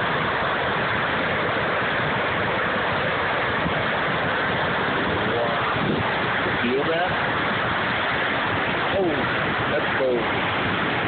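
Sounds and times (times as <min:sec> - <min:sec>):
whitewater roaring: 0:00.0 - 0:11.0.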